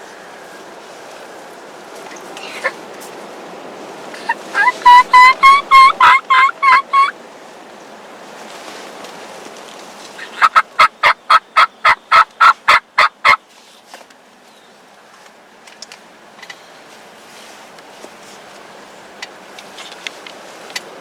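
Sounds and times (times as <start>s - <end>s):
turkey yelping: 4.2s - 7.2s, 10.2s - 13.4s.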